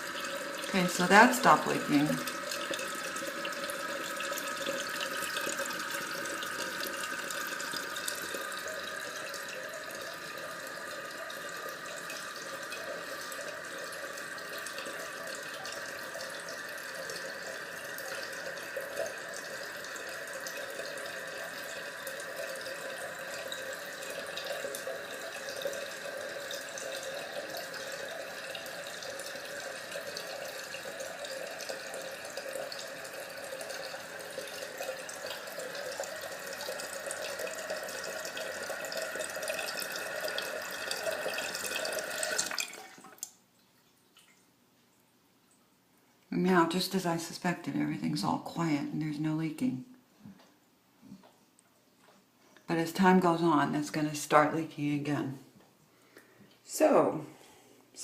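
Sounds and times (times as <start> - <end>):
toilet tank refilling: 0.0 - 43.4.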